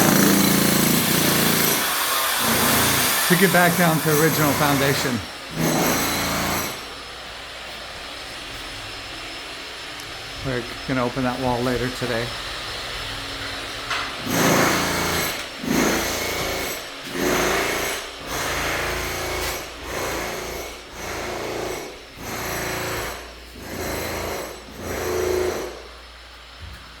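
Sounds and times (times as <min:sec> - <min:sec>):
hand tool rasping strokes: 0:00.0 - 0:06.8.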